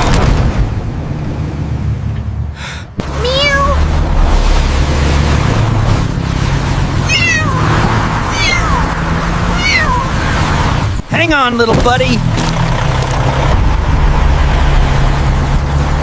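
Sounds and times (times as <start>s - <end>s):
kitten meowing: 3.1s - 3.8s, 7.0s - 10.2s.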